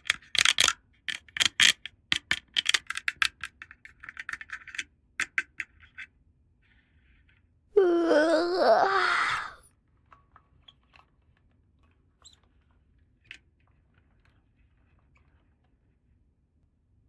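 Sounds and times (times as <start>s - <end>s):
plastic toy pieces clicking: 0.0s - 3.4s
wavering voice-like wail: 7.8s - 9.6s.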